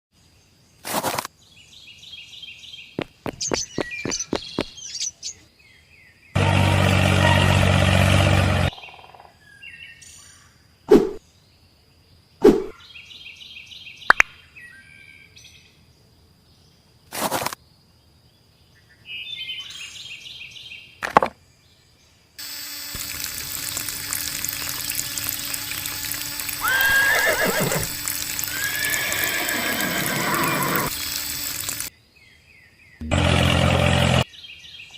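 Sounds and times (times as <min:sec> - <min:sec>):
bird-like chirps: 0:01.6 - 0:06.2
loud buzz: 0:06.4 - 0:08.7, 0:22.4 - 0:31.9, 0:33.0 - 0:34.2
water pump whirring: 0:06.4 - 0:08.7, 0:22.4 - 0:31.9, 0:33.0 - 0:34.2
water rushing: 0:23.0 - 0:31.9.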